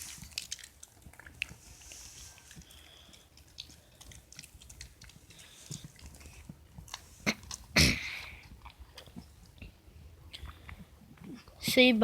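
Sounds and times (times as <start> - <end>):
dog crunching candy: 0.0 - 9.6.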